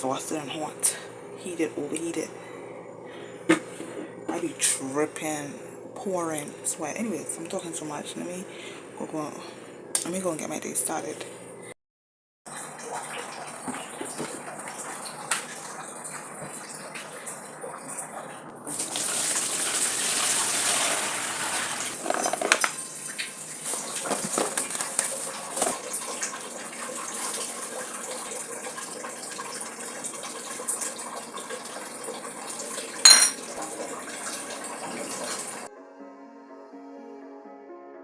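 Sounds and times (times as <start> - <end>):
tap water running into sink: 3.2 - 8.7, 12.5 - 35.7
dishes and utensils clinking: 22.0 - 22.7, 33.1 - 33.6.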